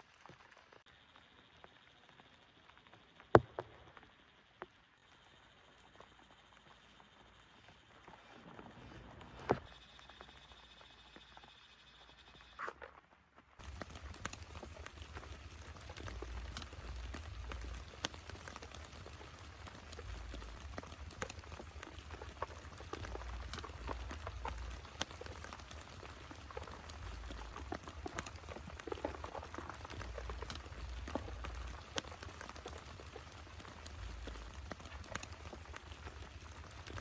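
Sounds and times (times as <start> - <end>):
raindrops ticking on surface: 0.0 - 10.4, 13.5 - 37.0
heavy rain hissing: 13.6 - 37.0.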